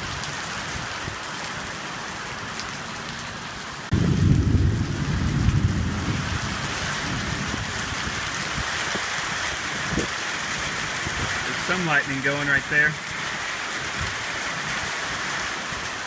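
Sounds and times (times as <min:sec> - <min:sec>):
heavy rain: 0:00.0 - 0:16.0
thunder clap: 0:03.9 - 0:09.1.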